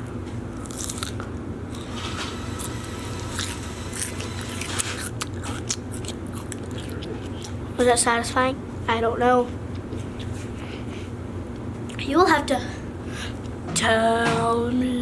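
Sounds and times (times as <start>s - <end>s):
chewing and crunching salad: 0.5s - 8.0s.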